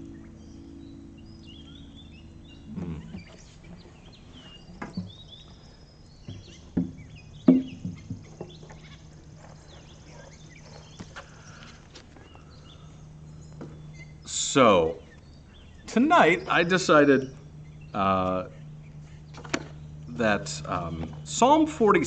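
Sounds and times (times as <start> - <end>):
small birds chirping: 0.0 - 22.0
sharp pops and knocks: 6.3 - 8.8.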